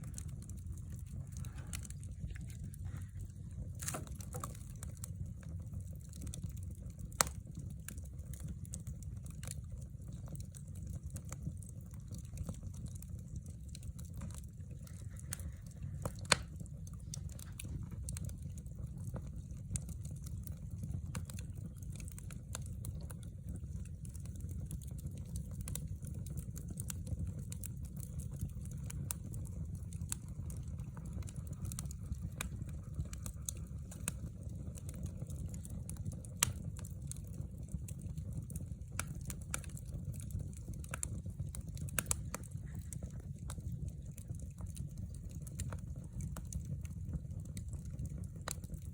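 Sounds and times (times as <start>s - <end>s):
fire crackling: 0.0s - 48.9s
low rumble of flame: 0.0s - 48.9s
sharp fire pops: 3.6s - 5.1s, 16.0s - 16.6s.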